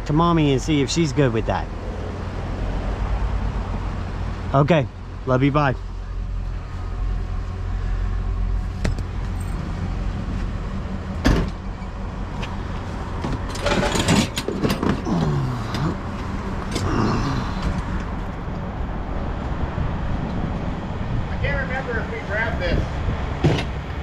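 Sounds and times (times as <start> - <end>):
vehicle engine running: 0.0 - 22.8
knocks and metal clatter: 8.7 - 9.7, 10.4 - 16.9, 23.4 - 23.8.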